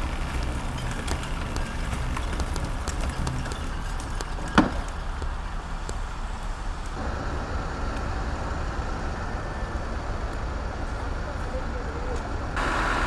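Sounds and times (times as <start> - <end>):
heavy diesel truck engines: 0.0 - 13.0.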